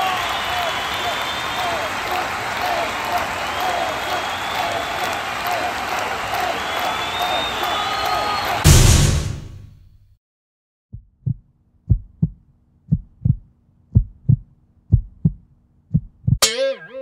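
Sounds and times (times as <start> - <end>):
heartbeat thumps: 10.9 - 16.4.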